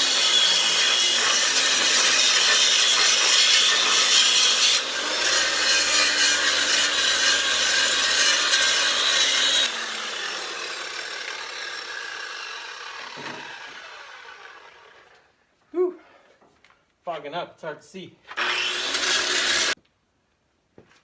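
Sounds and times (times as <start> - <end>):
angle grinder cutting concrete: 0.0 - 15.2, 18.3 - 19.8.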